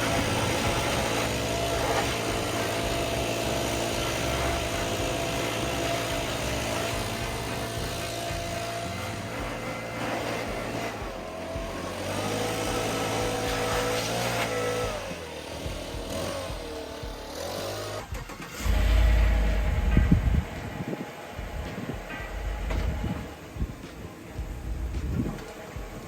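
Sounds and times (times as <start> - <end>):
lawn mower engine running: 0.0 - 26.0
loud low rumble: 18.6 - 23.8.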